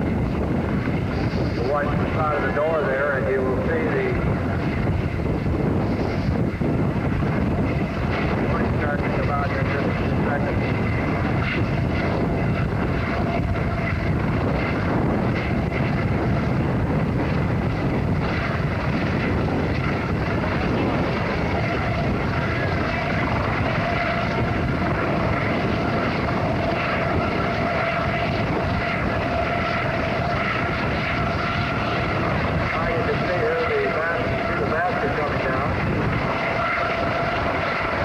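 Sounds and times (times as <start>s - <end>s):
aircraft engine drone: 0.0s - 38.0s
faint steady whine: 0.0s - 38.0s.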